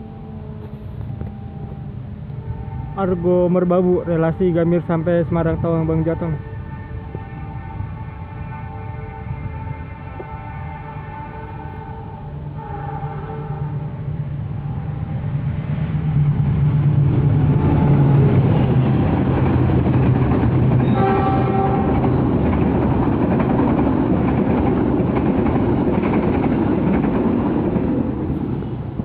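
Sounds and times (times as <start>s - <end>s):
train horn: 0.0s - 15.4s, 17.4s - 18.6s, 20.8s - 22.3s
locomotive drone: 0.0s - 29.0s
train wheels on rails: 14.1s - 29.0s.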